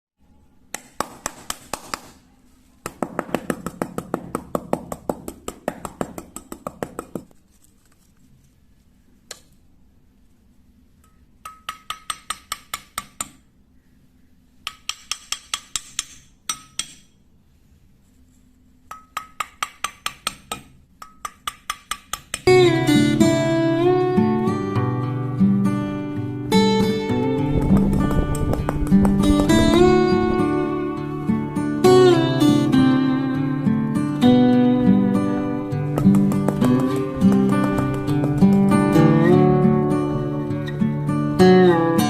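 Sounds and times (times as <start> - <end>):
rapid sharp knocks on wood: 2.8 - 7.3, 27.4 - 29.8, 36.0 - 38.9.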